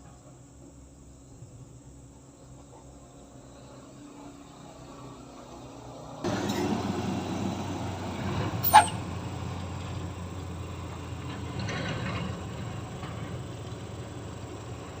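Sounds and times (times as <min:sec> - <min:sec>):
heavy machinery engine running: 0:06.2 - 0:15.0.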